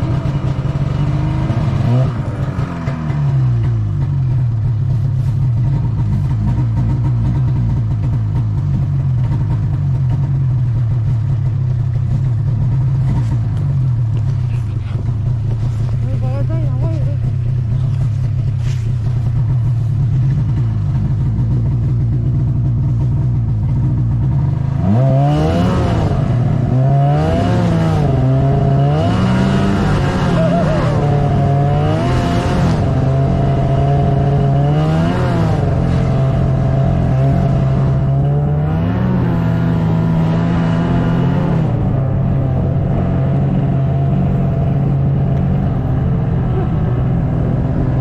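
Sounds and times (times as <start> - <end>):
snowmobile engine revving: 0.0 - 3.8, 23.9 - 48.0.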